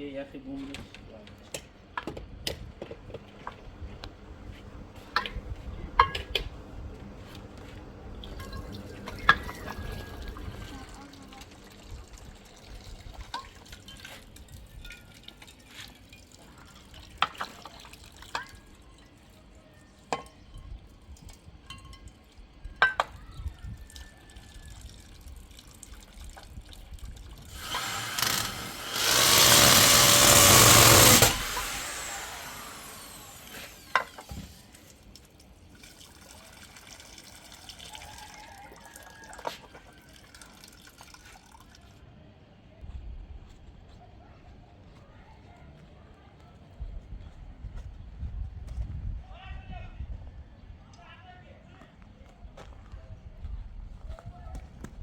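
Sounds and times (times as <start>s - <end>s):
rush of pouring water: 8.1s - 18.6s, 23.8s - 27.5s, 34.6s - 42.0s
water dripping and splashing: 8.1s - 19.4s, 24.4s - 27.5s, 34.7s - 42.0s.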